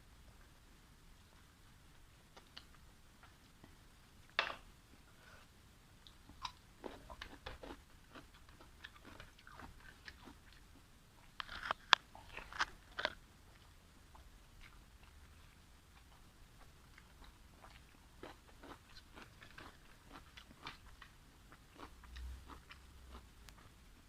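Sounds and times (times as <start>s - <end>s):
person chewing and biting: 17.6s - 21.1s.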